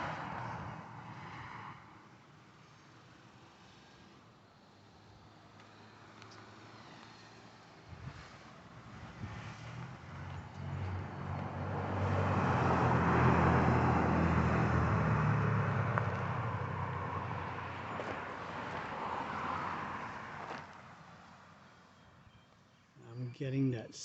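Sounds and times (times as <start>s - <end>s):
car driving past: 4.9s - 20.7s.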